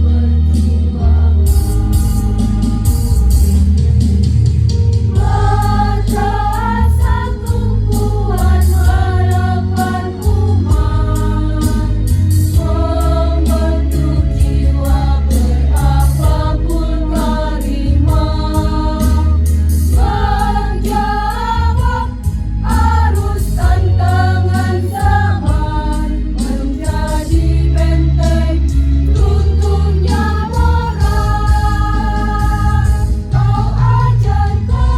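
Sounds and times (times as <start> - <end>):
choir singing: 0.0 - 3.4, 5.1 - 34.9
accompaniment with heavy bass beat: 0.0 - 34.9.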